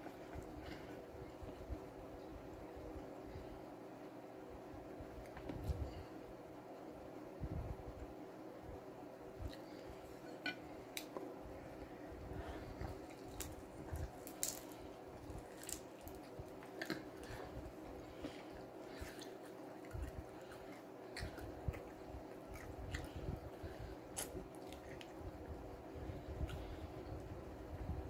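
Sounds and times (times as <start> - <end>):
faint steady hum: 0.0 - 28.0
person chewing: 12.6 - 25.2.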